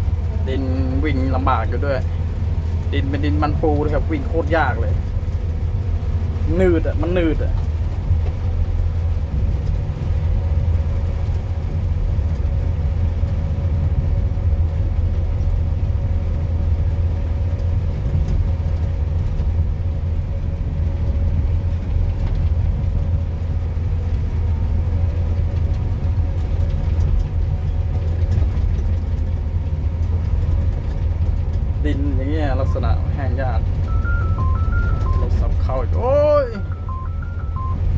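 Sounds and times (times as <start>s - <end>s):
diesel engine droning: 0.0s - 37.9s
faint steady hum: 31.9s - 37.9s.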